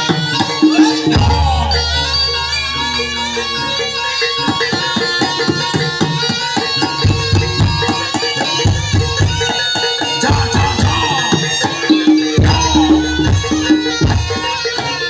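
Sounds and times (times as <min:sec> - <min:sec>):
ringing pitched percussion: 0:00.0 - 0:15.0
deep low drum strokes: 0:01.2 - 0:02.4
fast hand drumming: 0:05.0 - 0:15.0.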